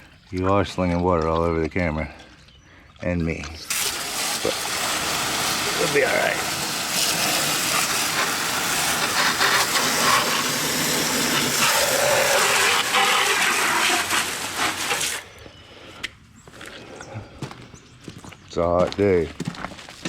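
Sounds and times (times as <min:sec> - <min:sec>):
hose spraying water on metal: 0:03.6 - 0:15.3.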